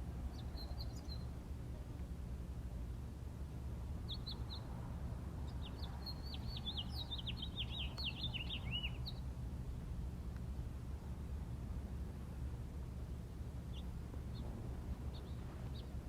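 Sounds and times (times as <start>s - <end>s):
steady low rumble: 0.0s - 16.0s
bird singing: 0.2s - 1.4s, 4.0s - 4.7s, 5.4s - 9.3s, 13.7s - 16.0s.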